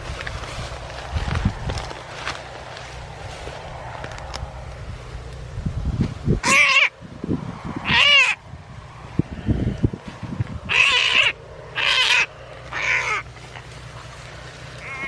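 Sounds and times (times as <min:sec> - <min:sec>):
low scuffling noises: 0:00.0 - 0:06.3, 0:12.4 - 0:15.0
animal crying out: 0:06.4 - 0:07.0, 0:07.8 - 0:08.4, 0:10.7 - 0:13.3, 0:14.8 - 0:15.0.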